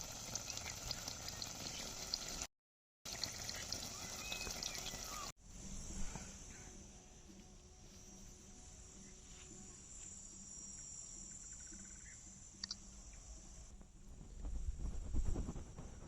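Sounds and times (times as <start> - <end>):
small clicks: 12.6 - 12.8.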